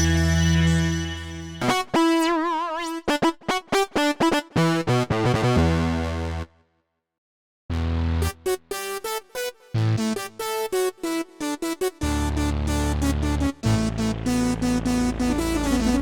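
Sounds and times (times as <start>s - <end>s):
synthesizer notes: 8.2s - 16.0s.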